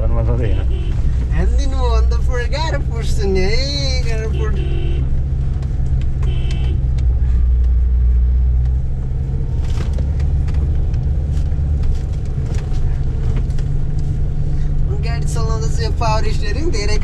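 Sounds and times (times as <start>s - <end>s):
car engine and road rumble: 0.0s - 17.0s
light rattles and knocks: 8.5s - 14.5s.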